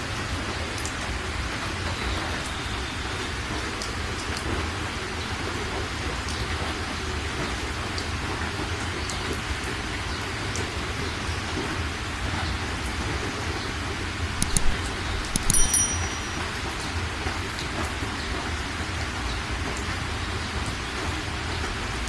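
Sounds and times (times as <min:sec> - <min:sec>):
heavy rain falling: 0:00.0 - 0:15.3, 0:16.7 - 0:22.0
sharp clicks: 0:14.4 - 0:16.6.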